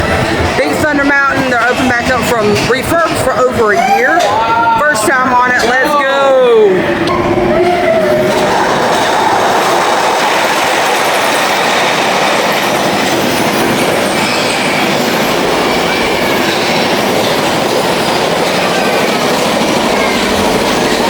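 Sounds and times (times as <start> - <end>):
roller coaster wheels rumbling: 0.0 - 21.0.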